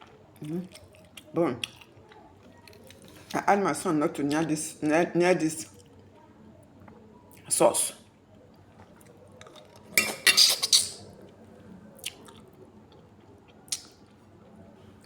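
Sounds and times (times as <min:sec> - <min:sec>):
metal utensil scraping cooking pot: 0:10.0 - 0:11.0.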